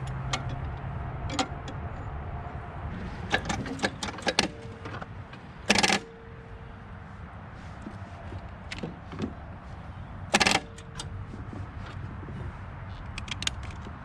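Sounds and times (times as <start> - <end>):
metal tools clanking: 3.2 - 6.3.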